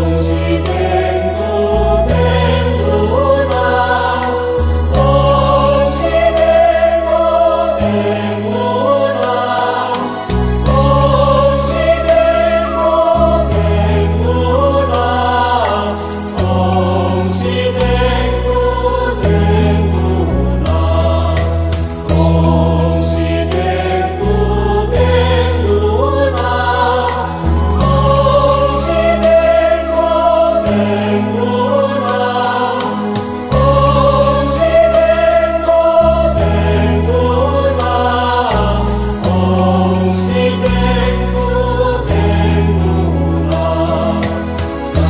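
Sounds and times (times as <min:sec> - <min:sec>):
low sustained accompaniment: 0:00.0 - 0:45.0
voices singing a hymn: 0:00.0 - 0:45.0.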